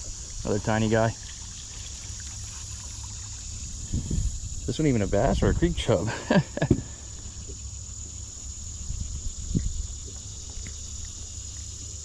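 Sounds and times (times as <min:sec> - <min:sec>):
high-pitched insect chorus: 0:00.0 - 0:12.0
low rumble: 0:03.6 - 0:07.6.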